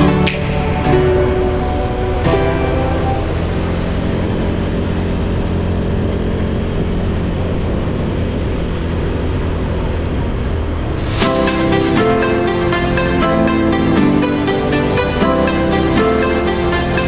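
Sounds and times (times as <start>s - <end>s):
electronic music with sharp beat: 0.0s - 1.2s, 11.0s - 17.0s
steady low rumble: 0.0s - 17.0s.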